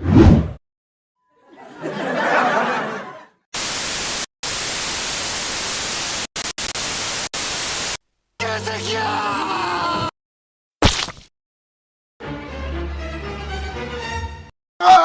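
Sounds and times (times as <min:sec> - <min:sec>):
white-noise static: 0:03.6 - 0:08.0.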